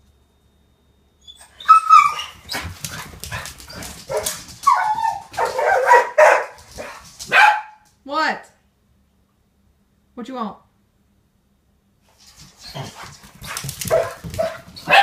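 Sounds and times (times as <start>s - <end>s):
dogs barking and whining: 1.2s - 7.8s, 12.5s - 15.0s.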